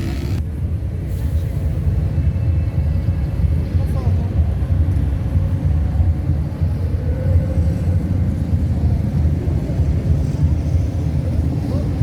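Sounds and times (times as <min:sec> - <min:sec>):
engines revving: 0:00.0 - 0:00.4
motorcycle engines rumbling: 0:00.0 - 0:00.7.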